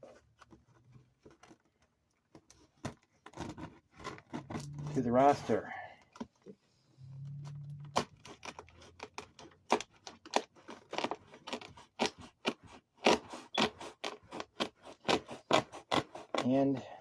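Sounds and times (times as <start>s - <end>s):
low hum: 6.8s - 8.3s.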